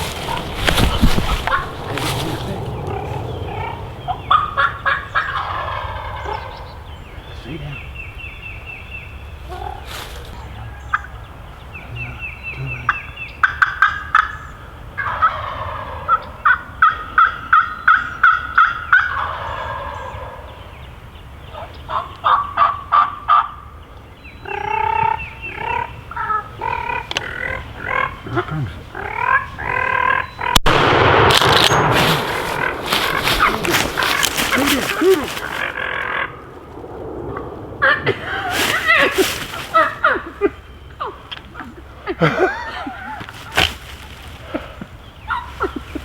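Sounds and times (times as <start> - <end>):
turkey gobbling: 0.0 - 6.8, 12.9 - 14.4, 15.0 - 20.5, 21.9 - 23.7, 24.5 - 30.6, 31.7 - 36.4, 37.8 - 46.0
turkeys yelping and clucking: 0.0 - 7.0, 12.9 - 20.6, 21.5 - 23.7, 24.4 - 30.6, 31.8 - 36.4, 37.8 - 46.0
sharp crack: 30.6 - 40.1, 43.3 - 44.8
loud rushing noise: 30.7 - 36.0.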